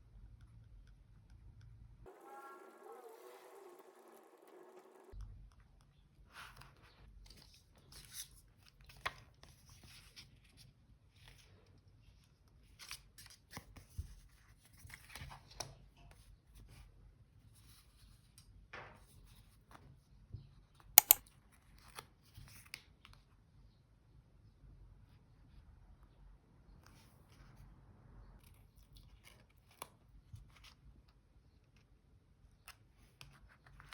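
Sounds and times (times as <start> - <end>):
scissors cutting paper: 21.0 - 21.2
sharp loud clicks: 21.0 - 21.2
small taps: 21.0 - 21.2.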